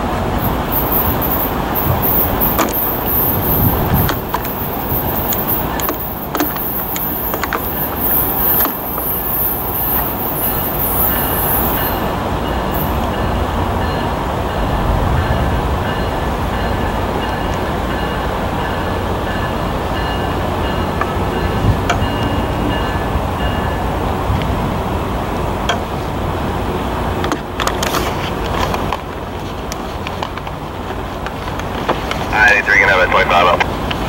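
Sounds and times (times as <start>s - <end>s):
train rumbling: 0.0s - 34.0s
bell ringing: 0.4s - 14.1s.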